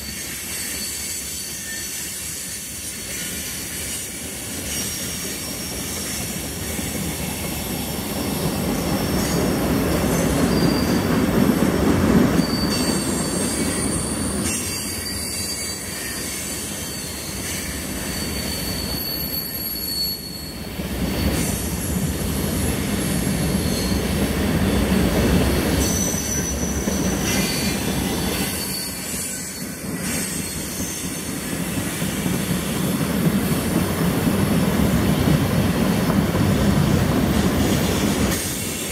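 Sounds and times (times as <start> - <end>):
freight train wheels rumbling: 0.0 - 38.9
high wheel squeal: 0.0 - 38.9.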